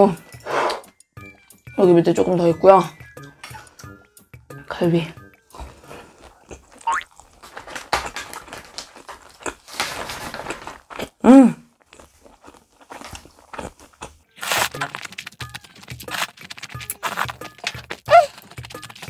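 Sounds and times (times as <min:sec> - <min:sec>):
slurping noodles: 0:00.4 - 0:00.9, 0:11.8 - 0:19.0
chewing mouth sounds: 0:05.4 - 0:09.8, 0:10.4 - 0:19.0
person humming: 0:18.1 - 0:18.4.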